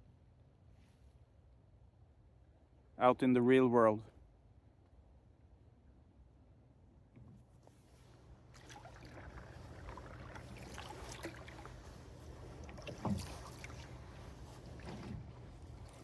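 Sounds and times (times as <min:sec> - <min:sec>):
paddle splashing in water: 0:07.6 - 0:16.0
paddle knocking on canoe: 0:12.5 - 0:16.0.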